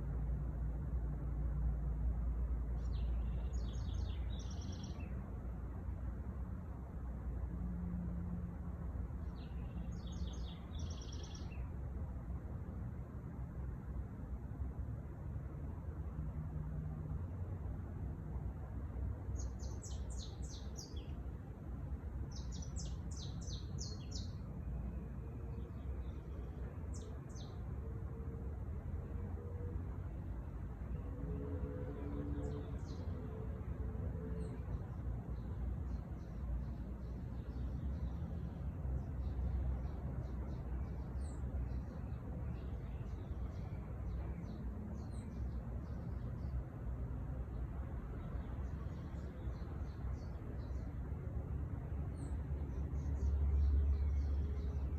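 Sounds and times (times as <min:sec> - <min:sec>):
small songbirds chirping: 0:02.6 - 0:05.5, 0:09.1 - 0:11.9, 0:19.3 - 0:27.8, 0:32.1 - 0:33.4, 0:34.4 - 0:54.9
songbird chirping: 0:02.7 - 0:05.3, 0:09.3 - 0:11.7, 0:19.3 - 0:21.3, 0:22.2 - 0:27.7.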